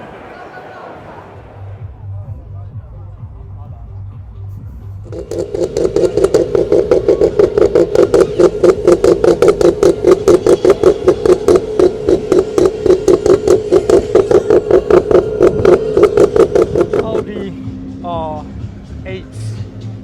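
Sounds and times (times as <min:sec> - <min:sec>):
car engine idling: 0:05.0 - 0:20.0.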